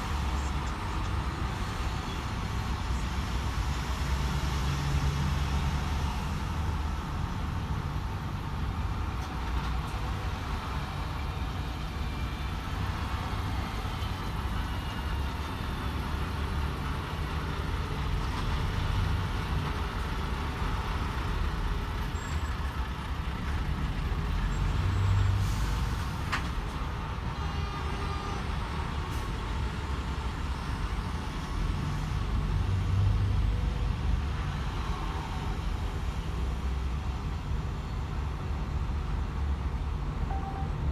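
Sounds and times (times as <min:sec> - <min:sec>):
road noise: 0:00.0 - 0:40.9
truck engine drone: 0:00.0 - 0:40.9.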